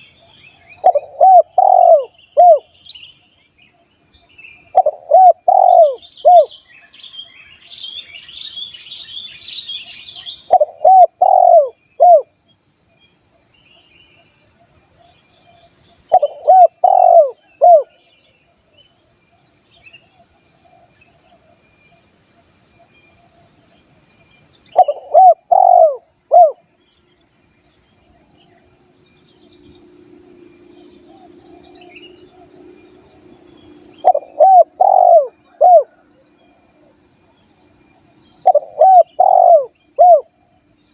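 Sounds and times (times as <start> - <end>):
small birds chirping: 0.0 - 22.1, 22.8 - 40.9
dove cooing: 0.8 - 2.7, 4.7 - 6.5, 10.5 - 12.3, 16.1 - 18.0, 24.7 - 26.6, 33.9 - 36.2, 38.4 - 40.4.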